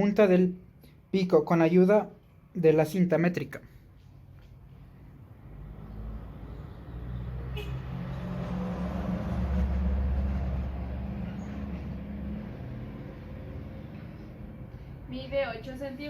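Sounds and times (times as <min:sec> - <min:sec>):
vehicle engine passing: 0:04.2 - 0:15.3.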